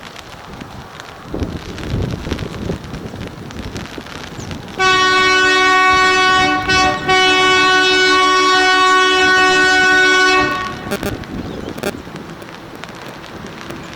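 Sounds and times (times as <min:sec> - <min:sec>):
rain: 0:00.0 - 0:07.5, 0:10.0 - 0:13.9
wind: 0:00.0 - 0:13.9
locomotive air horn blast: 0:04.8 - 0:11.4.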